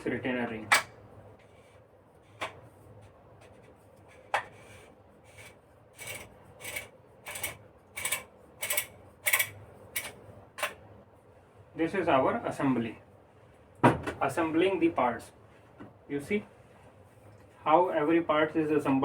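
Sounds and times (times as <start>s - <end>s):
metal threads rasping: 4.5s - 9.5s.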